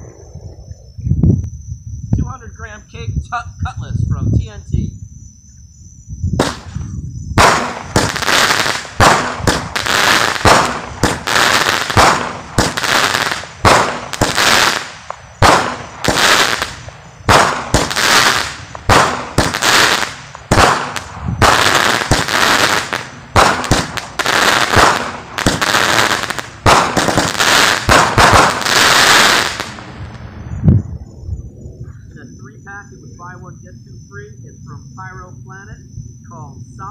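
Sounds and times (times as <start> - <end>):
firework launches: 6.4 - 30.4
firework bursts overhead: 6.4 - 30.5.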